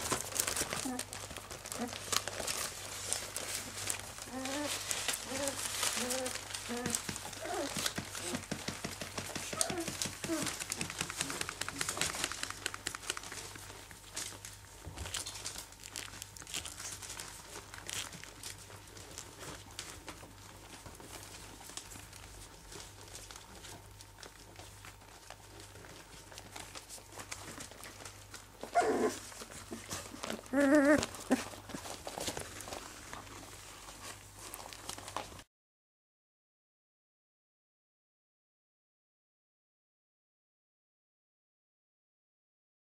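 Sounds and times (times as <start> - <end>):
puppy whining: 0.0 - 13.8, 15.0 - 35.3
puppies rustling on crinkly bedding: 0.0 - 35.5
puppy crying: 4.2 - 8.5, 9.4 - 10.6, 28.6 - 32.0.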